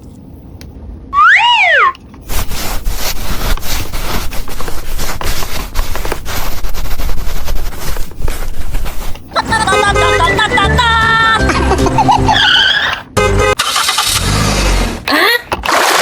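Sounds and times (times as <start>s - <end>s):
plastic packaging crackling: 2.3s - 9.3s.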